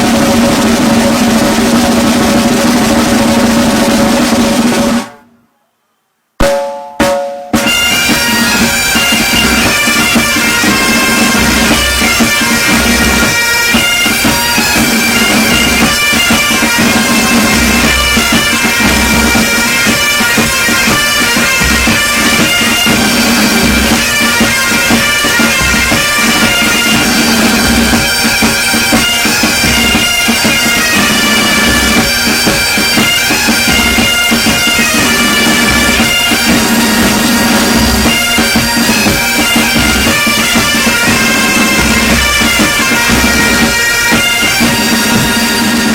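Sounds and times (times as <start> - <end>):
bass drum beats: 6.4 - 12.0
bagpipes playing: 7.6 - 45.9.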